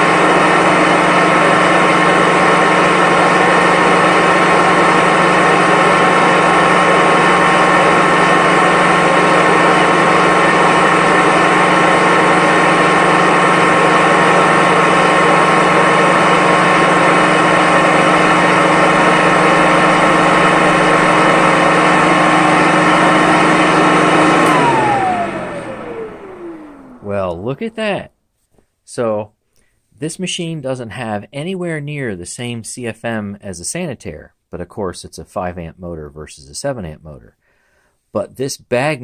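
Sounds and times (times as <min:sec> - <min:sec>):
vacuum cleaner motor running: 0:00.0 - 0:27.7.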